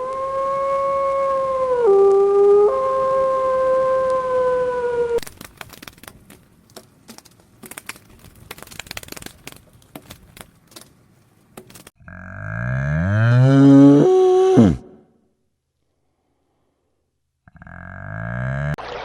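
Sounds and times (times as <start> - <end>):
dog howling: 0.0 - 5.2
faint clicks and crackles: 5.2 - 12.0
cow mooing: 12.0 - 15.0, 17.5 - 18.8.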